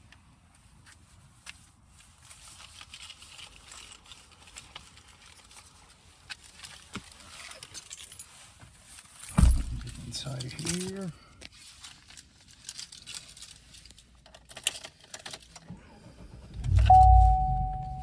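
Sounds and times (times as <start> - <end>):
heavy low thump: 16.5 - 18.0.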